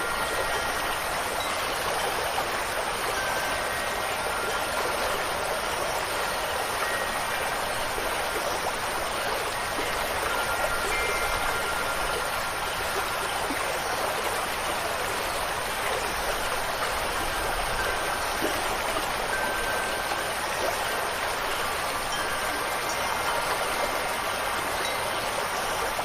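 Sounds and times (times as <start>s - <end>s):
rushing water: 0.0s - 26.0s
wind chimes ringing: 0.0s - 26.0s.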